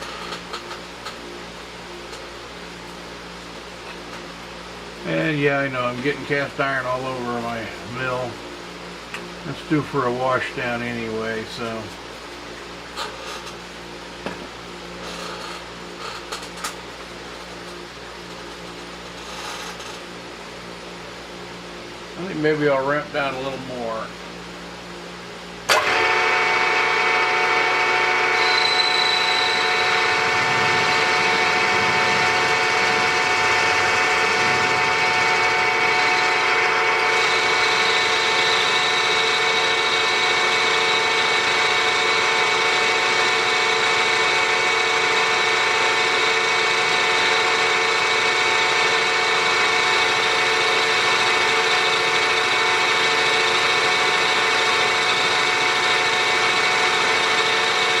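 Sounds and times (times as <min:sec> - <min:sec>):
multi-tone gear whine: 0:00.0 - 0:58.0
end mill cutting cast iron: 0:25.7 - 0:58.0
milling spindle running: 0:25.7 - 0:58.0.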